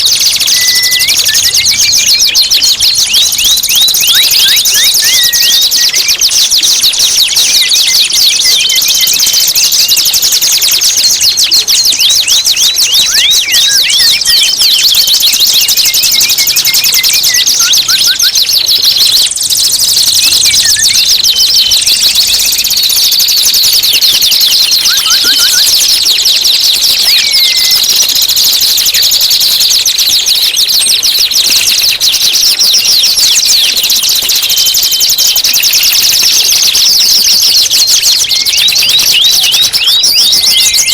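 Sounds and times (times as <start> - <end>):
short whistled bird notes: 0.0 - 29.6
songbird chirps and trills: 0.0 - 40.9.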